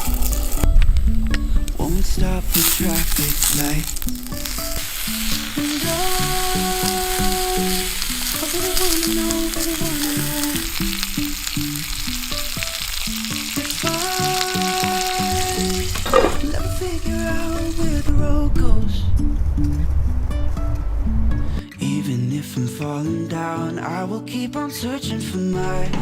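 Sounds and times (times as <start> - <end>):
meat sizzling in hot fat: 0.0 - 0.7, 2.5 - 18.1
gentle instrumental melody: 0.0 - 2.4, 3.9 - 18.0.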